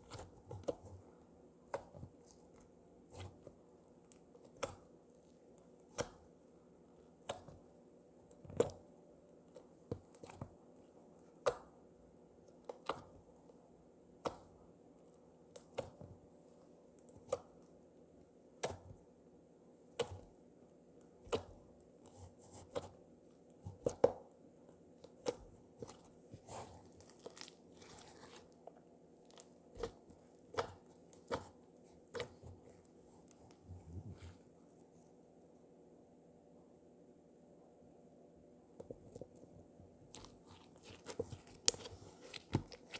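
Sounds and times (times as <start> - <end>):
soft slime crackling: 19.7 - 35.2, 38.8 - 42.9.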